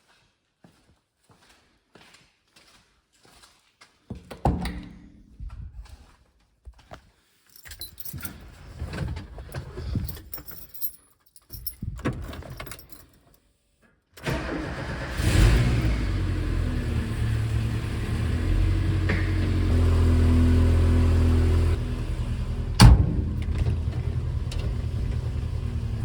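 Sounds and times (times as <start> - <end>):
keys jingling: 7.4 - 8.6, 9.4 - 13.4
car engine starting and idling: 14.2 - 26.0.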